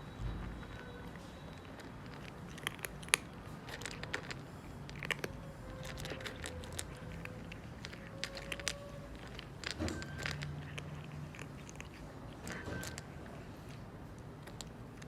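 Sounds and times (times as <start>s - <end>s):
cat crunchy chewing: 0.0s - 15.0s.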